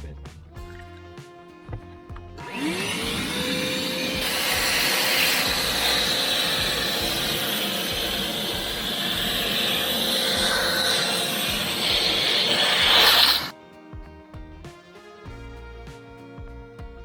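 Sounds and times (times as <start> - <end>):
vacuum sucking pine needles: 0.7 - 13.6
shop vacuum motor whine: 1.7 - 13.6.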